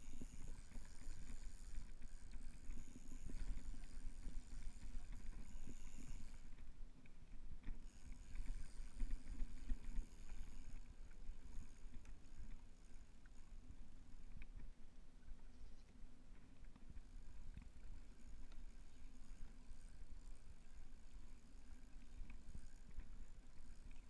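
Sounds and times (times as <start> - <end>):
water hissing along a kayak: 0.0 - 6.6.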